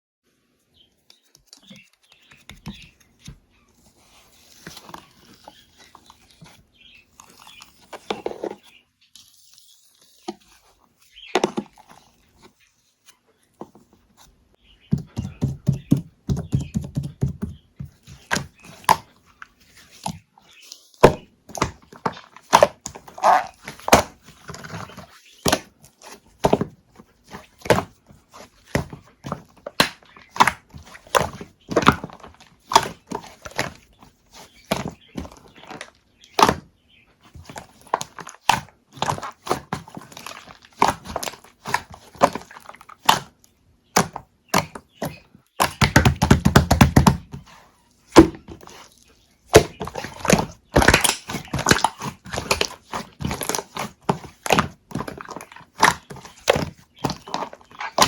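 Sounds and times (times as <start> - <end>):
knocks and taps: 14.9 - 19.0, 45.6 - 47.4.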